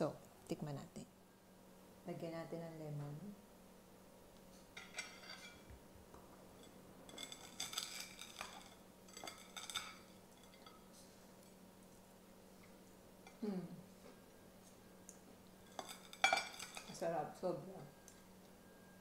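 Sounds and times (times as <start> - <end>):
knife and fork scraping a plate: 4.8 - 5.7, 6.6 - 10.8, 15.6 - 17.0.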